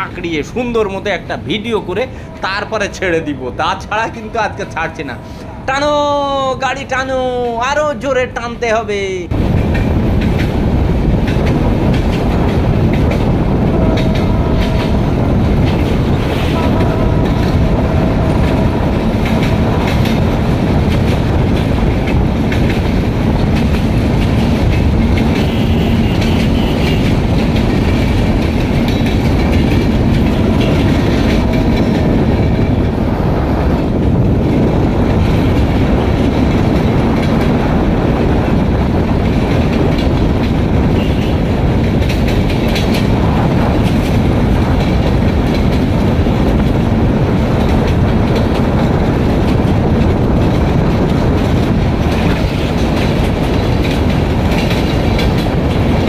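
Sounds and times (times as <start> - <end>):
diesel train rumbling on rails: 0.0 - 56.0.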